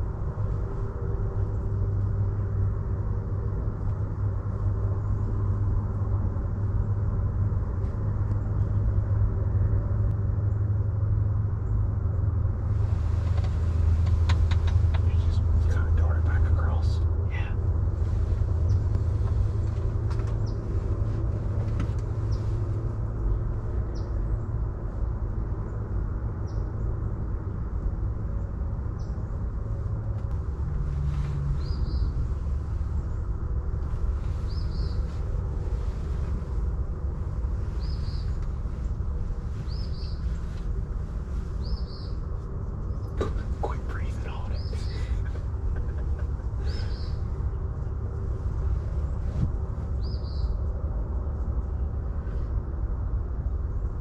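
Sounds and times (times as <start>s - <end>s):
low outdoor rumble: 0.0s - 54.0s
bird chirping: 31.4s - 33.2s, 34.3s - 35.2s, 37.6s - 38.4s, 39.6s - 40.5s, 41.6s - 42.2s, 42.8s - 47.9s, 50.0s - 50.6s.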